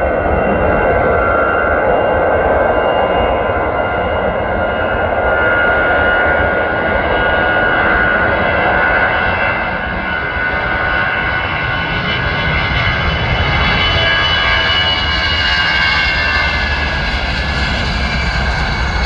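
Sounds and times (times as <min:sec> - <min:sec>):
jet engines at takeoff: 0:00.0 - 0:19.0
high whining engine tones: 0:06.6 - 0:19.0.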